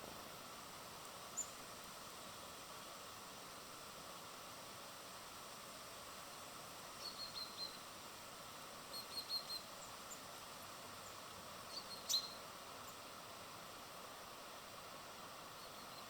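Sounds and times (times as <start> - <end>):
steady hiss: 0.0 - 16.0
small birds chirping: 1.3 - 1.6, 7.0 - 7.9, 8.9 - 10.4, 11.0 - 13.1, 15.5 - 16.0.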